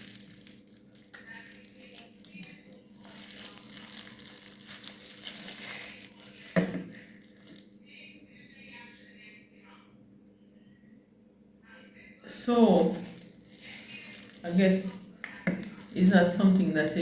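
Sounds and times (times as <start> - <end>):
packaging crinkling and rustling: 0.0 - 7.7, 12.4 - 17.0.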